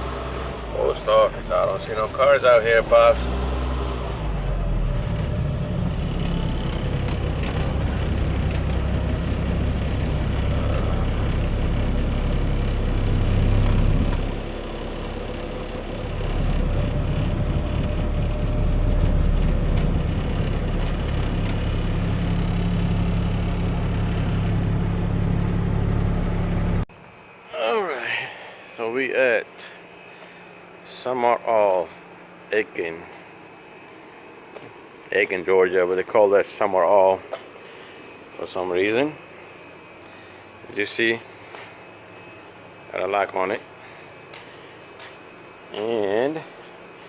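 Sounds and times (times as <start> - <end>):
truck engine running: 0.0 - 26.9.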